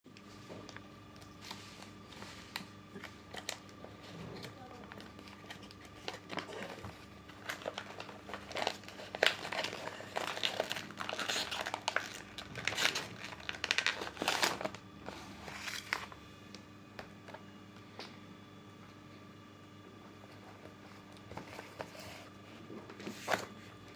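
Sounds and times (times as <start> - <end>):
packaging crinkling and rustling: 0.2 - 17.4.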